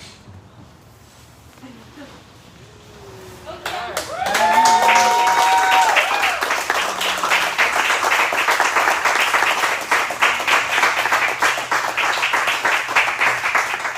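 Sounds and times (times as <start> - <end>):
crowd applauding: 3.5 - 13.9.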